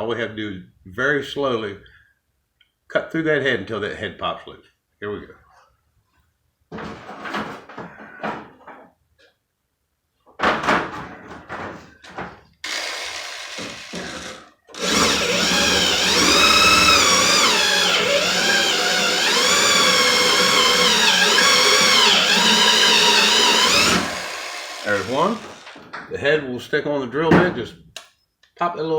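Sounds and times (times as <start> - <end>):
electric drill cutting metal: 12.6 - 25.8.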